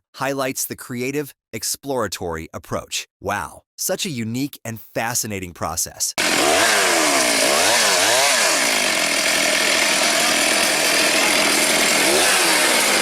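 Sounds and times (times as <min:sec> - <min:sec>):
chainsaw cutting wood: 0:06.2 - 0:13.0.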